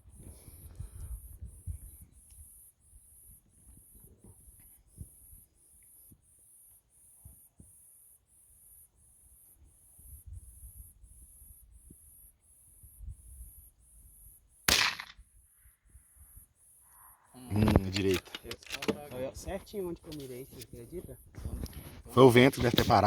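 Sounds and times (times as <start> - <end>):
wind rumble on microphone: 0.0 - 2.2, 20.7 - 22.1
rifle shot: 14.7 - 15.2.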